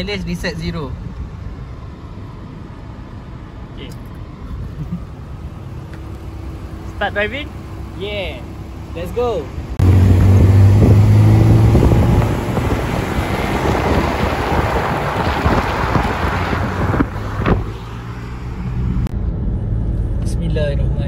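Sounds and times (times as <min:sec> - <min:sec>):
road hum inside car: 0:00.0 - 0:21.0
low engine drone: 0:01.5 - 0:21.0
wind rushing over microphone: 0:09.8 - 0:19.1.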